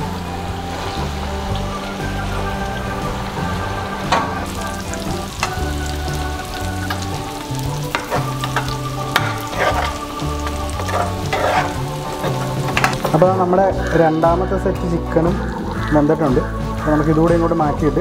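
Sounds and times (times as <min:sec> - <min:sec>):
chicken deep-frying in oil: 0:00.0 - 0:18.0
spoon scraping and tapping a pan: 0:07.9 - 0:13.2.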